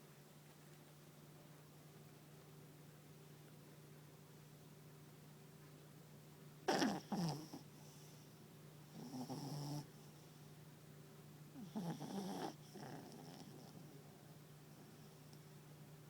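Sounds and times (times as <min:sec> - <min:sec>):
small dog snoring and snorting: 0:06.6 - 0:10.4, 0:11.5 - 0:14.0.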